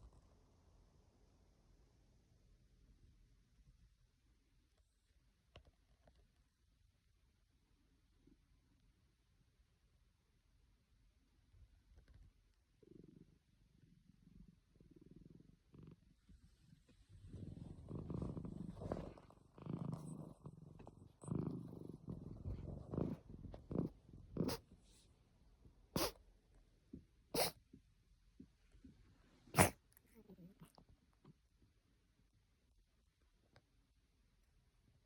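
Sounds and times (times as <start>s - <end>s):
cat purring: 4.6s - 25.2s, 25.9s - 26.2s, 28.5s - 31.6s.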